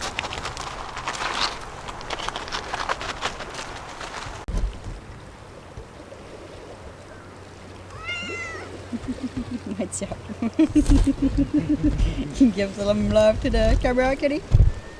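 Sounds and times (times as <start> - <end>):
light crunching: 0.0 - 4.6
cat meowing: 7.9 - 8.8.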